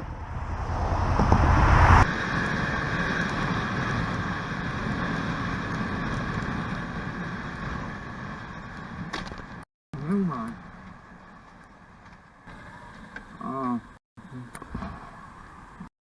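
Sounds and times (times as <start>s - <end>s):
wind rushing over microphone: 0.0s - 9.6s
road vehicle travelling: 0.0s - 15.9s.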